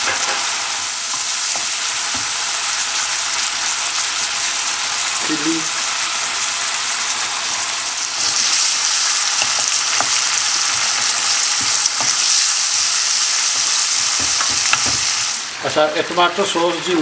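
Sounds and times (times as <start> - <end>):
food sizzling in hot oil: 0.0 - 17.0
wooden spoon tapping pan: 9.4 - 12.4, 14.1 - 15.2.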